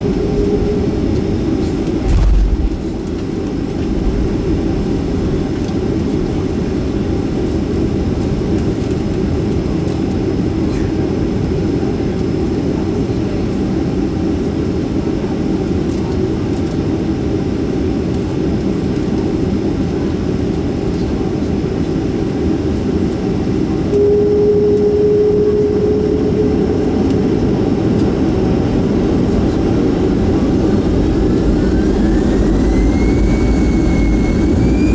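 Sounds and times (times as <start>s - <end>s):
jet engines rumbling: 0.0s - 8.2s, 20.3s - 34.9s
steady hum: 1.8s - 3.2s, 24.0s - 34.9s
low thump: 2.0s - 3.2s.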